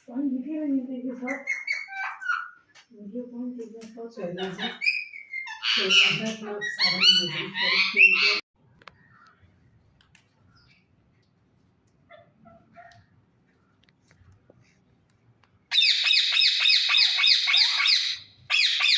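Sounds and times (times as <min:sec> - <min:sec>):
parakeet calling loudly: 0:01.3 - 0:02.6, 0:04.7 - 0:08.4, 0:15.7 - 0:18.9.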